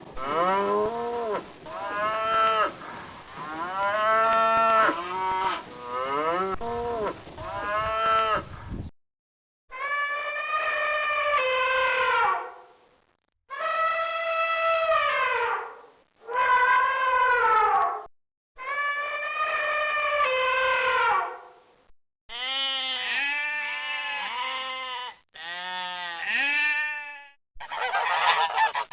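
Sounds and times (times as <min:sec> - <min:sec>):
cattle mooing: 0:00.2 - 0:08.5.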